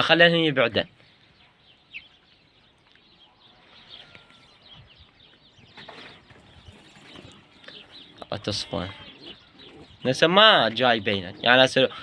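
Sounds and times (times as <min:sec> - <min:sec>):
bird chirps: 0:00.8 - 0:12.0.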